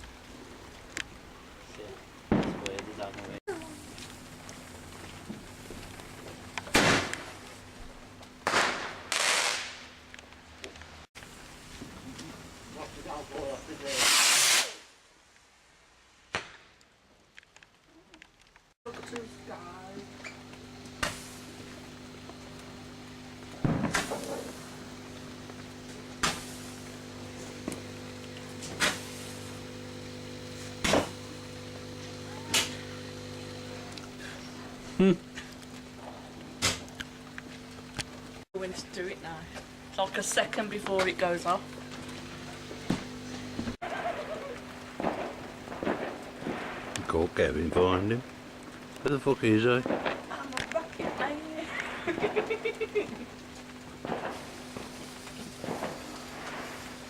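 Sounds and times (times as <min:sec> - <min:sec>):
firework hiss: 0:02.3 - 0:07.8, 0:08.4 - 0:10.0, 0:11.2 - 0:15.0, 0:19.1 - 0:37.5, 0:40.2 - 0:48.2, 0:49.8 - 0:57.0
fireworks banging: 0:02.3 - 0:10.0, 0:19.0 - 0:37.6, 0:40.0 - 0:47.8, 0:49.8 - 0:53.3, 0:54.0 - 0:57.0
steady low hum: 0:18.9 - 0:57.0.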